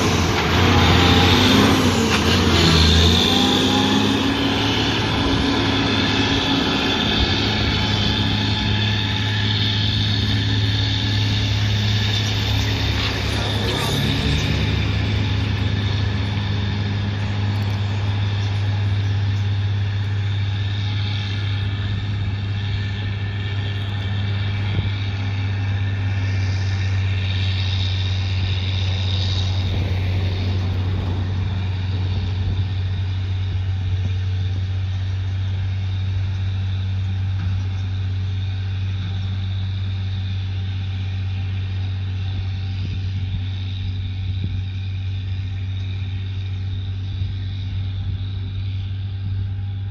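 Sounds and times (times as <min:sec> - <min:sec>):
heavy diesel engine running: 0:00.0 - 0:49.9.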